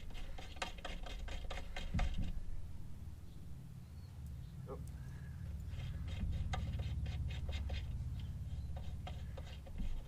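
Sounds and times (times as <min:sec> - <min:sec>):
small metal clicks and scrapes: 0:00.0 - 0:02.2, 0:05.5 - 0:10.0
steady low hum: 0:00.0 - 0:10.0.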